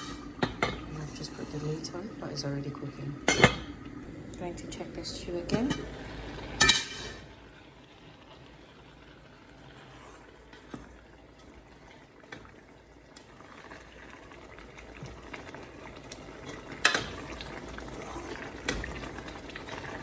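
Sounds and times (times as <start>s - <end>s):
stew bubbling in a pot: 0.0s - 20.0s
metal pot lid clanking: 3.2s - 3.7s, 6.6s - 7.3s.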